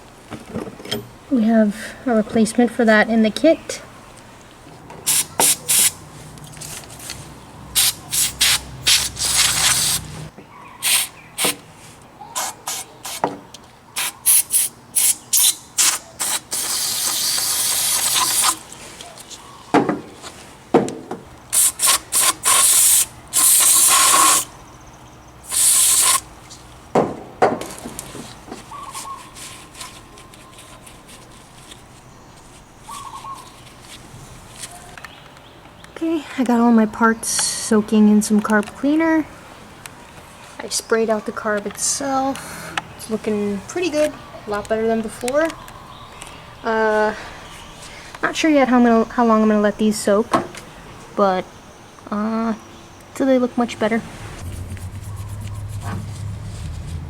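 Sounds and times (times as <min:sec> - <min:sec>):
aerosol spray hissing bursts: 0:05.1 - 0:06.0, 0:07.8 - 0:11.6, 0:14.0 - 0:18.6, 0:21.6 - 0:24.5, 0:25.5 - 0:26.2.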